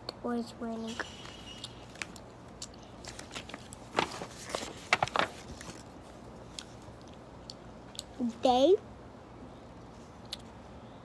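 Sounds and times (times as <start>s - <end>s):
paper rustling: 3.0s - 6.2s.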